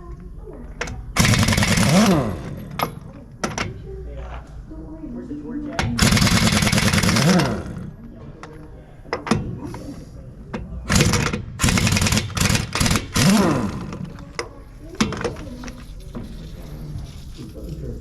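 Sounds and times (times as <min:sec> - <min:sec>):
power tool motor running: 0:01.2 - 0:02.8, 0:06.0 - 0:07.9, 0:11.0 - 0:14.1.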